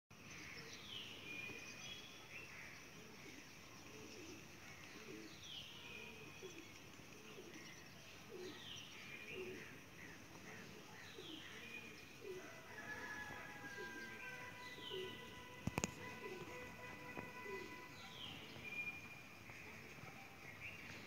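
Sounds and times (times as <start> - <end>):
faint steady hiss: 0.2 - 21.0
low cooing notes: 13.2 - 18.7.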